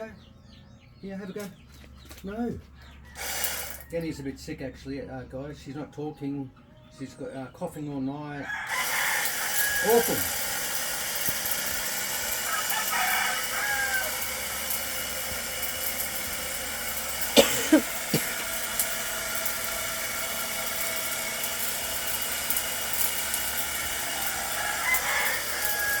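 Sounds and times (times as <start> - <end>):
rooster crowing: 8.4 - 10.4, 11.8 - 14.8, 23.0 - 26.0.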